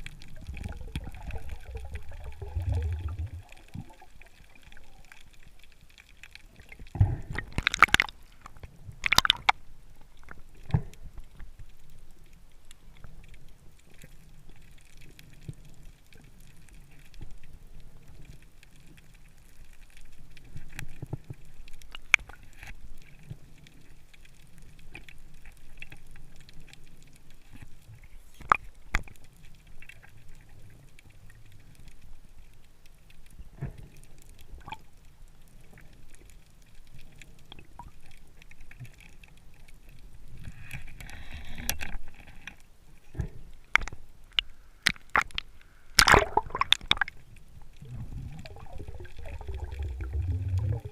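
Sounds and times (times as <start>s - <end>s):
sea water rushing: 0.0s - 5.4s, 6.7s - 9.5s, 45.1s - 47.2s, 47.8s - 50.9s.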